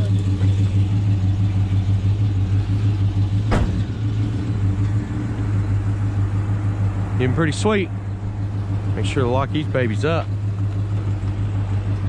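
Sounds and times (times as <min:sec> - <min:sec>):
car engine idling: 0:00.0 - 0:12.0
sharp knock: 0:03.5 - 0:03.9.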